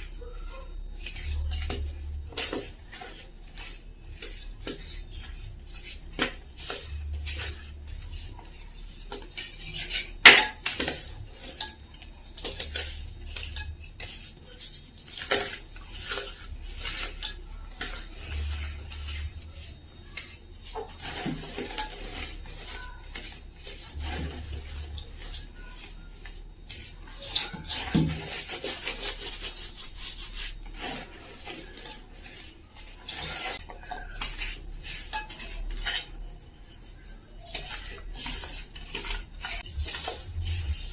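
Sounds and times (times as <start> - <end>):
utensil clinking and scraping dish: 0.0 - 40.9.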